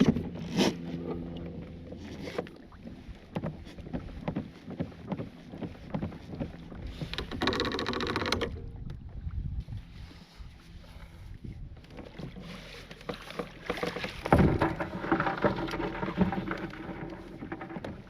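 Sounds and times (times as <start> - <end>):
gear knocking against kayak hull: 2.0 - 9.0, 13.0 - 18.0.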